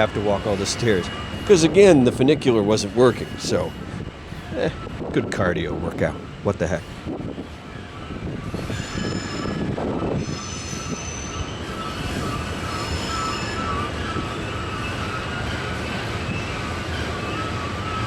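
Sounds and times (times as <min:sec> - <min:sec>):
train wheels rumbling on rail: 0:00.0 - 0:18.0
wheel flanges squealing: 0:00.0 - 0:18.0.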